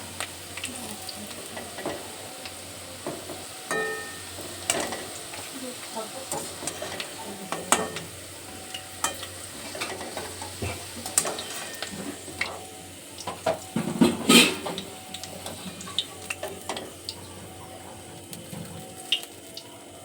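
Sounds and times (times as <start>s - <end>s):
nuts sizzling in hot oil: 0.0s - 20.0s
spatula stirring and scraping pan: 3.1s - 8.0s, 9.0s - 12.5s, 13.8s - 16.8s.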